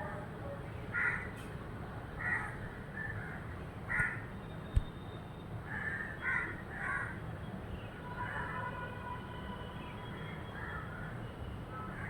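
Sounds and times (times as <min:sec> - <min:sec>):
harsh cawing bird calls: 0:05.7 - 0:07.2.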